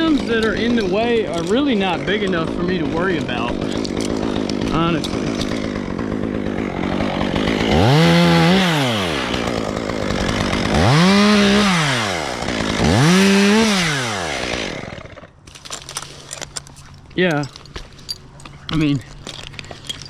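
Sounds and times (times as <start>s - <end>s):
chainsaw revving: 0.0s - 15.4s.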